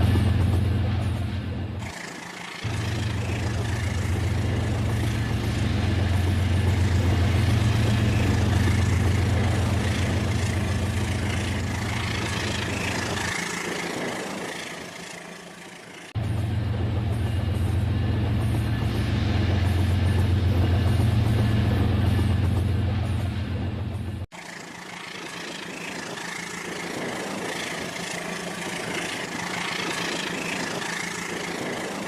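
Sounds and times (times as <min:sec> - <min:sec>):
model train humming: 0:01.8 - 0:32.0.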